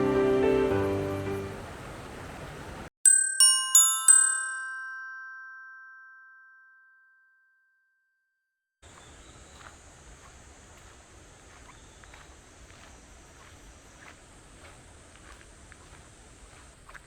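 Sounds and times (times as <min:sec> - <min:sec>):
background music: 0:00.0 - 0:01.7
bell-like chime: 0:03.1 - 0:08.0.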